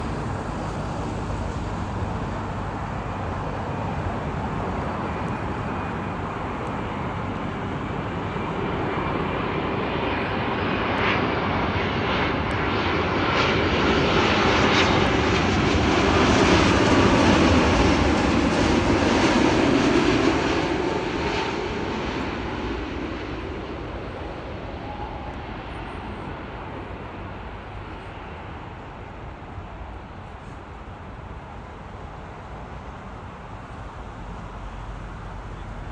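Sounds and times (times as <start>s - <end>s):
engine fan whine: 0.0s - 35.9s
jet airliner passing overhead: 0.0s - 35.9s.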